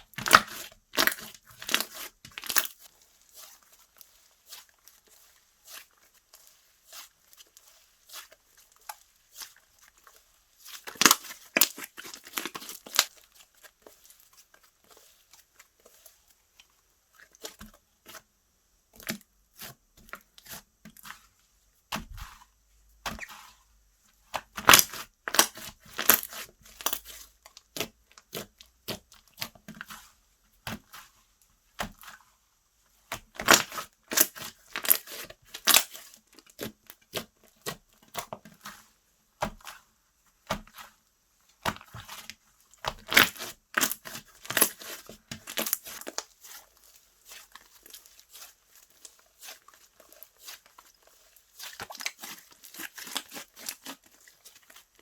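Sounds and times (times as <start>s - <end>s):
slime squished by hand: 10.6s - 14.4s, 24.2s - 31.1s, 41.6s - 54.8s.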